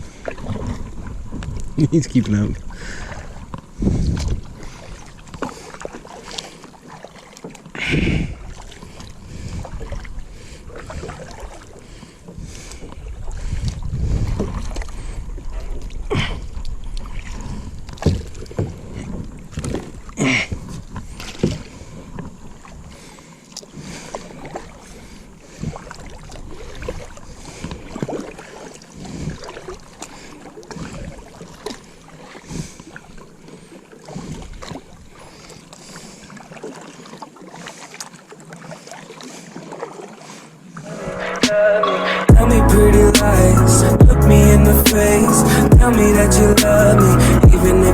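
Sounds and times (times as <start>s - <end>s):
paddle splashes: 0.0s - 1.8s, 2.5s - 42.2s
wind rumble on microphone: 0.0s - 5.3s, 13.0s - 20.0s.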